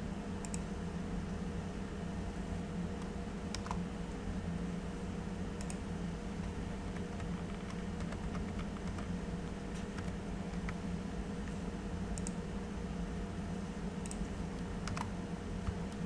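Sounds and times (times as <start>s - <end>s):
low electrical hum: 0.0s - 16.0s
keyboard and mouse clicks: 0.4s - 0.6s, 3.5s - 3.8s, 5.6s - 5.8s, 6.4s - 9.1s, 9.8s - 10.8s, 14.0s - 16.0s.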